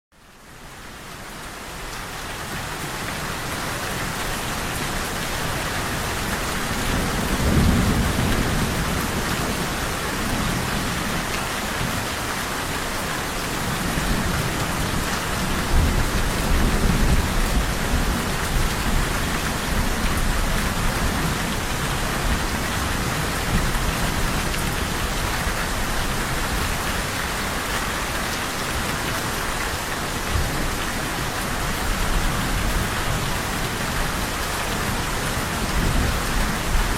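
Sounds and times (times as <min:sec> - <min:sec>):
heavy rain falling: 0:00.2 - 0:36.9
thunder rumbling: 0:06.0 - 0:11.1.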